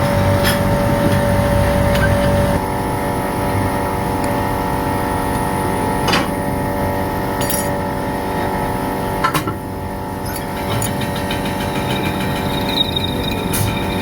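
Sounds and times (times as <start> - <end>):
workshop machinery droning: 0.0 - 14.0
sharp metal clinks: 7.4 - 7.8.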